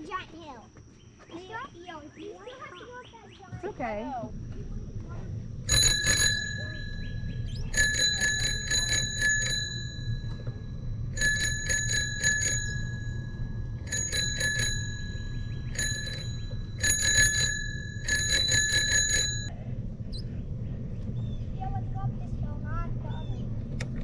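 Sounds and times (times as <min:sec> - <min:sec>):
bicycle bell dings: 0:05.7 - 0:19.5.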